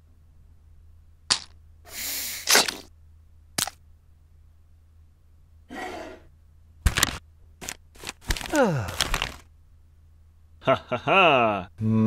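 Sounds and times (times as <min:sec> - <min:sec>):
syringe hiss: 0:01.9 - 0:02.9.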